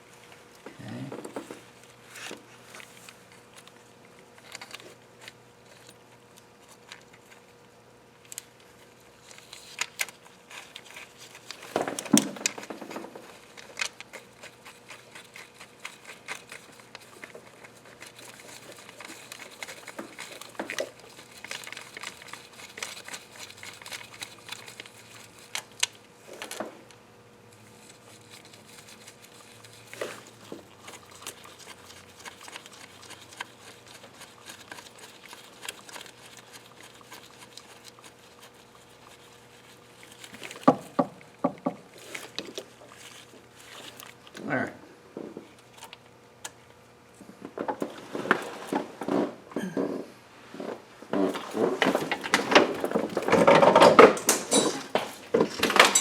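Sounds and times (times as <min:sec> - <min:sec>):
metal parts clattering: 0:51.9 - 0:56.0.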